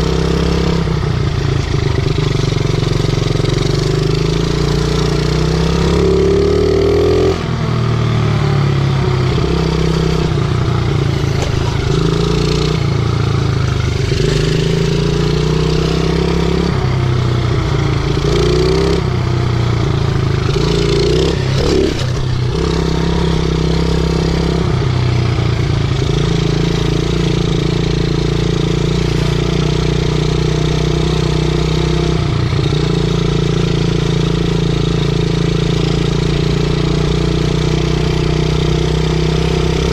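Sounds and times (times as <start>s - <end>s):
small motorbike engine revving: 0.0s - 39.9s.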